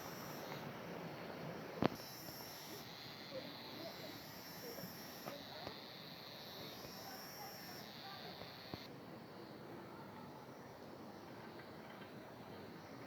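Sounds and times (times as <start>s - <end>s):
insects buzzing: 0.0s - 8.9s
outdoor hiss: 0.0s - 9.2s.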